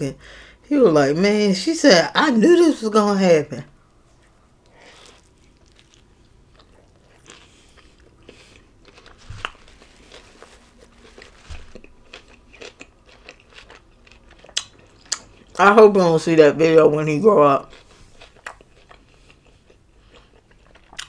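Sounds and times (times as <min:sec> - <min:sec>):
biting and chewing food: 0:04.2 - 0:15.6, 0:17.4 - 0:21.0
soft crunches and clicks: 0:06.6 - 0:12.7.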